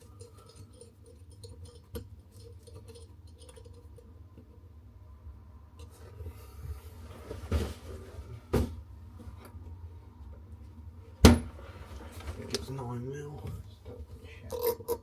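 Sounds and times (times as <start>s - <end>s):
tools scraping and clicking: 14.5s - 15.0s.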